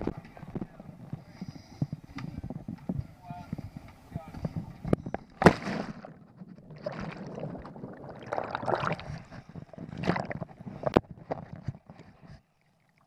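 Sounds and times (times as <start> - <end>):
water sloshing and splashing: 5.4 - 13.0.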